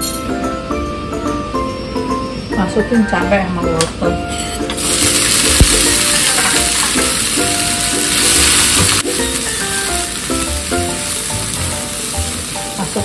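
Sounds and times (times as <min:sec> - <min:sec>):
vegetables sizzling in hot oil: 0:04.8 - 0:13.0.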